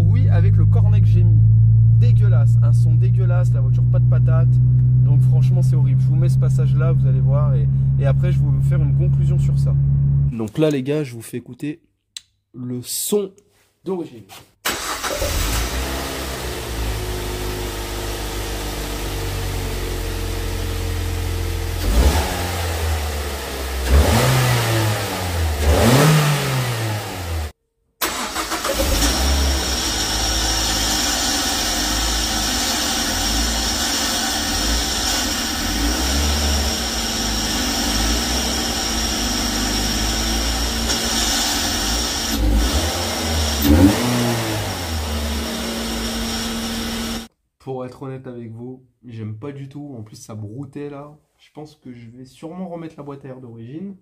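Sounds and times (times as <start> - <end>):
man talking: 0.0 - 1.4, 2.0 - 11.9, 12.5 - 14.4, 47.6 - 54.0
car engine idling and revving: 0.0 - 10.3, 14.8 - 47.3.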